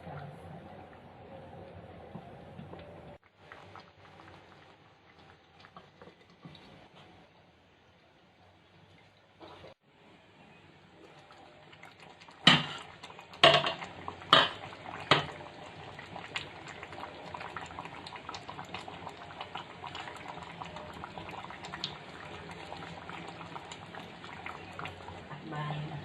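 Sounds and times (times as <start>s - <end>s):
curry simmering and bubbling: 0.0s - 26.0s
metal clanking against pot: 12.5s - 15.3s.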